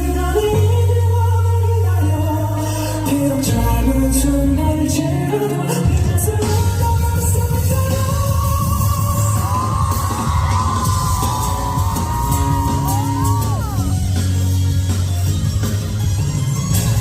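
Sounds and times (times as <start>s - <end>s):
drums: 0.0s - 17.0s
heavy bass line: 0.0s - 17.0s
live rock band playing: 0.0s - 17.0s
high held melody line: 4.6s - 17.0s.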